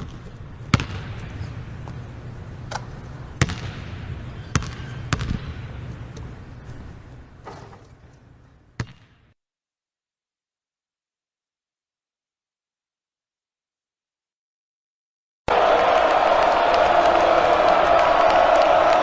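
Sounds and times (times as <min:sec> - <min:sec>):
basketball bouncing on hard court: 0:00.0 - 0:02.0, 0:03.4 - 0:05.6
steady low background noise: 0:00.0 - 0:08.8.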